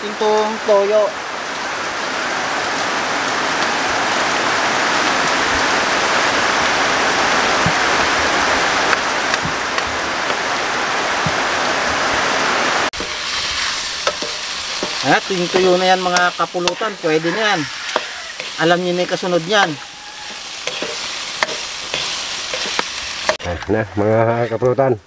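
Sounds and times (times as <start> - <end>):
snails sizzling in a wok: 13.0 - 23.4
wooden spatula stirring: 13.0 - 23.4.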